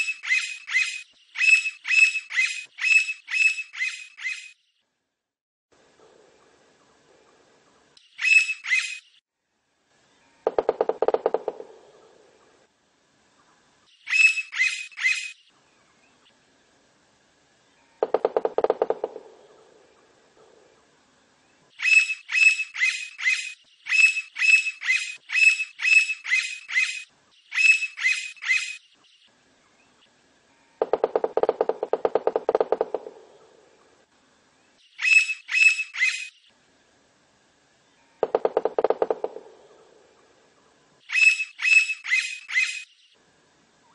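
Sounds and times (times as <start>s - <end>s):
woodpecker calling sharp high notes: 0.0s - 4.6s, 8.2s - 9.1s, 14.0s - 15.4s, 21.8s - 28.8s, 35.0s - 36.4s, 41.1s - 43.0s
woodpecker rapid rattling: 10.5s - 11.8s, 18.0s - 19.4s, 30.8s - 33.5s, 38.2s - 39.9s.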